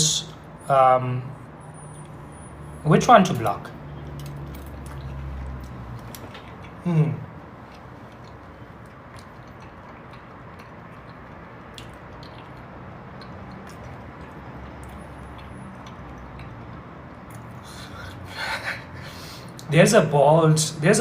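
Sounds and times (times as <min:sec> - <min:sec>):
low background hum: 0:00.0 - 0:21.0
person chewing food: 0:04.0 - 0:18.2.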